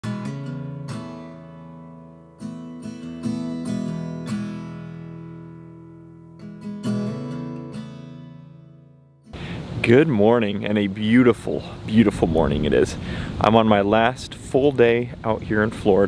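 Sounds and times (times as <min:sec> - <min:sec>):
acoustic guitar strums: 0:00.0 - 0:10.1.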